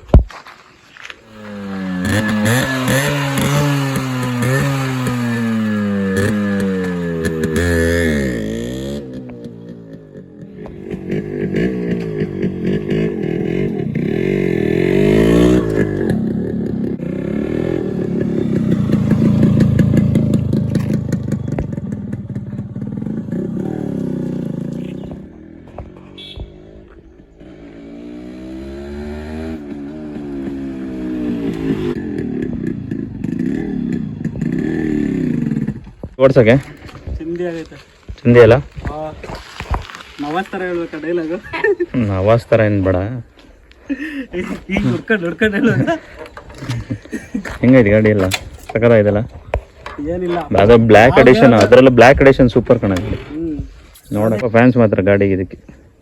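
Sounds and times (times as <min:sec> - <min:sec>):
motorcycle engine revving: 0:01.3 - 0:43.4, 0:44.6 - 0:55.2
two-stroke engine running: 0:01.5 - 0:25.6.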